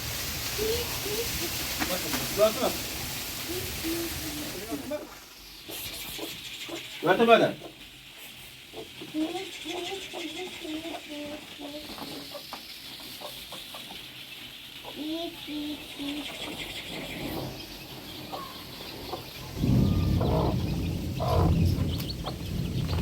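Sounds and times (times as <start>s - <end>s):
chickens clucking: 0.0s - 23.0s
heavy rain hissing: 0.0s - 23.0s
loud low sound: 19.5s - 23.0s.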